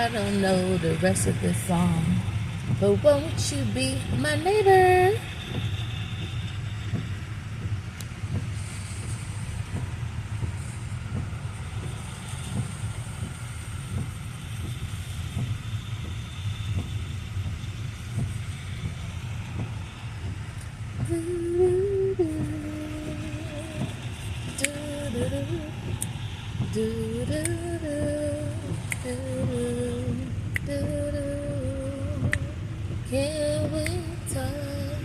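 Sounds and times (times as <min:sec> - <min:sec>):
car cabin rumble: 0:00.0 - 0:35.0.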